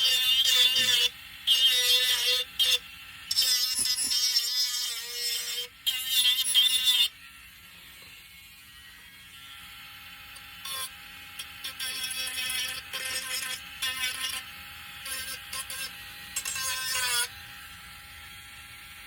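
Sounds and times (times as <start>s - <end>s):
sander grinding against wood: 0.0s - 9.4s.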